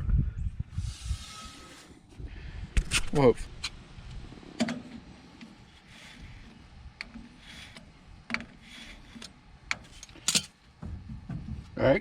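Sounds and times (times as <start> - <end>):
soft scraping: 5.4 - 10.0.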